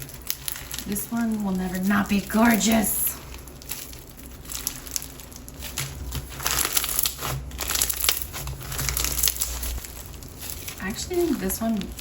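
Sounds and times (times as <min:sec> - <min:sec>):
crunchy slime squeezed by hand: 0:03.3 - 0:12.0.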